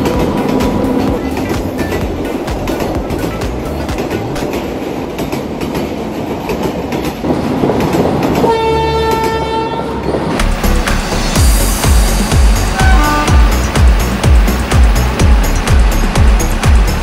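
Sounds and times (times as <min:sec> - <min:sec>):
toy train horn blast: 0:12.7 - 0:13.7.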